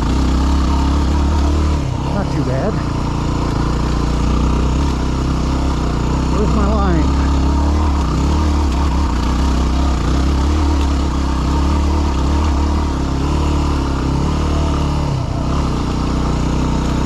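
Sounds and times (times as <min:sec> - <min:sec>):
dirt bike engine running: 0:00.0 - 0:17.0.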